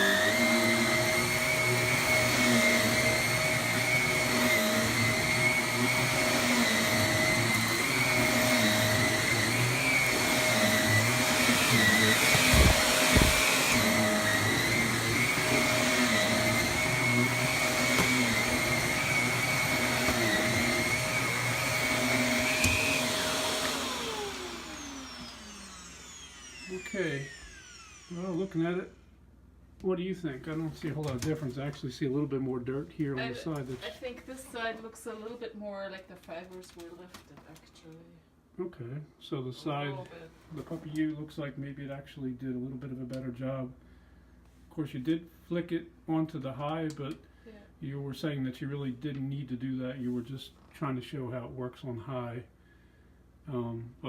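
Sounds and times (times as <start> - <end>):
vacuum cleaner motor whine: 0.0 - 29.1.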